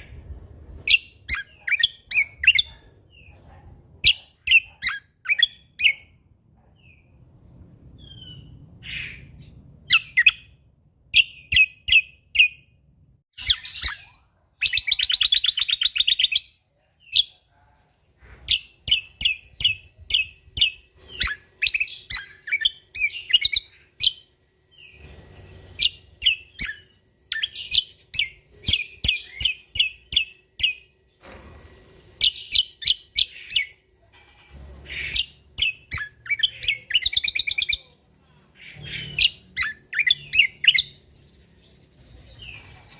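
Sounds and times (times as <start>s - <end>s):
songbird chirping rapidly: 0.9s - 3.4s, 13.4s - 25.1s, 34.8s - 37.9s, 38.6s - 42.9s.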